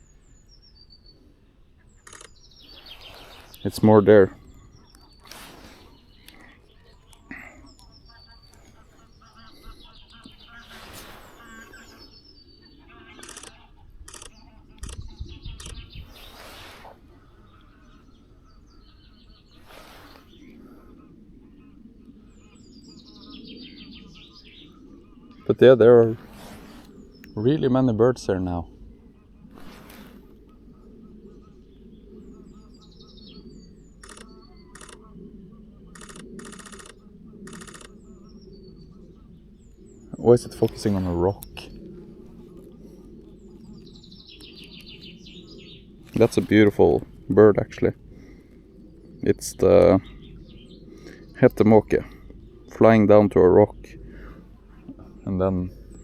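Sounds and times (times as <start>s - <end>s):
wild birds calling: 0.0s - 56.0s
low rumble on microphone: 1.9s - 56.0s
camera shutter bursts: 2.0s - 3.0s, 13.1s - 16.6s, 34.0s - 35.0s, 35.9s - 37.9s.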